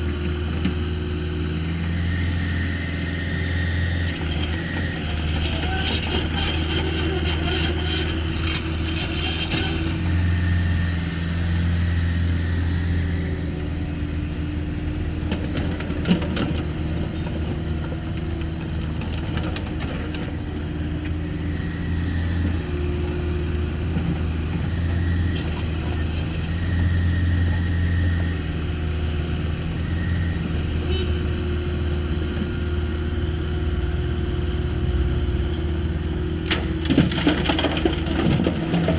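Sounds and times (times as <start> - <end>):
excavator diesel engine running: 0.0 - 38.9
rattle of soil and stones: 36.4 - 38.9.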